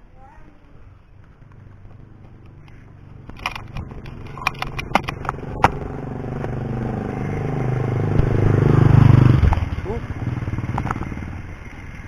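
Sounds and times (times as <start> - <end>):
sharp clicks and rattles: 0.6 - 6.6, 10.6 - 12.0
approaching vehicle engine: 0.7 - 12.0.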